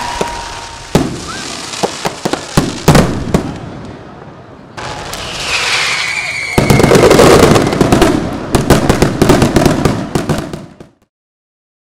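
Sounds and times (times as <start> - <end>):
firework whistle falling pitch: 0.0 - 1.8, 4.8 - 7.9
firework bangs and crackles: 0.0 - 11.1.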